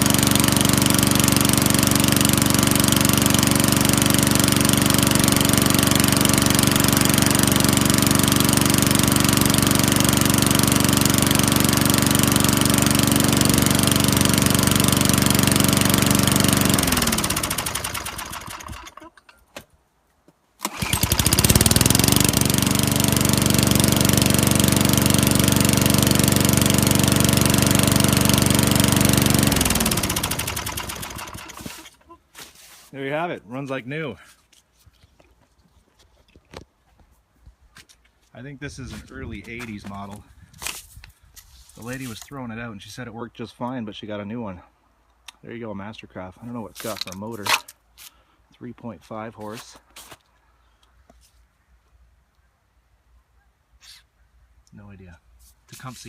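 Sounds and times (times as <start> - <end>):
lawnmower engine running: 0.0 - 19.2, 20.6 - 32.0.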